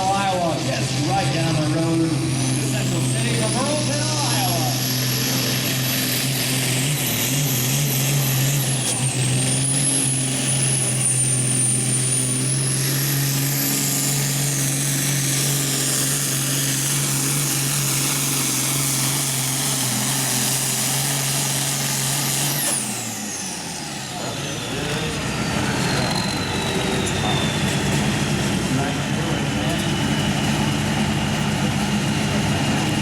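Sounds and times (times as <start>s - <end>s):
high whine: 0.0s - 19.2s, 22.1s - 33.0s
tractor diesel engine revving hard: 0.0s - 33.0s.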